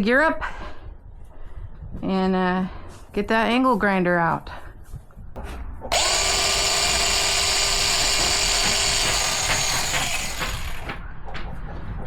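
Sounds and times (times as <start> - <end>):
angle grinder whining: 5.9 - 11.0.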